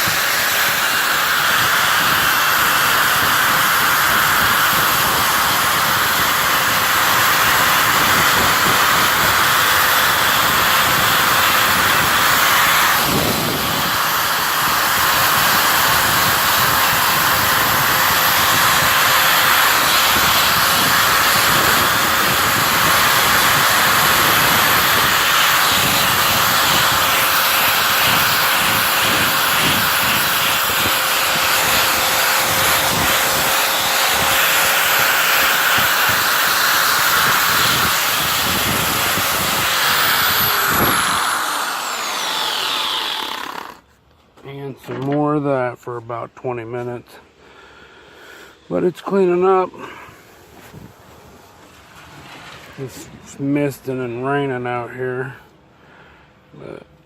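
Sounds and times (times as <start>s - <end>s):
wheel hissing on iron: 0.0s - 43.9s
power tool whining: 0.0s - 44.1s.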